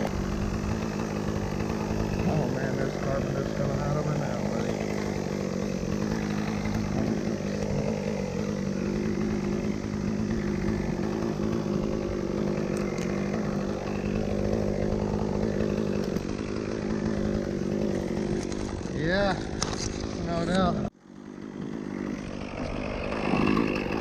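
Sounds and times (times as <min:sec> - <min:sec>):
chainsaw cutting wood: 0:00.0 - 0:24.0.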